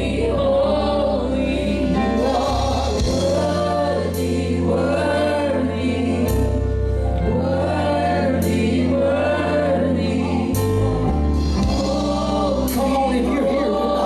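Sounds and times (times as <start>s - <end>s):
bass line: 0.0s - 14.0s
choir singing gospel: 0.0s - 14.0s
band playing: 1.5s - 14.0s.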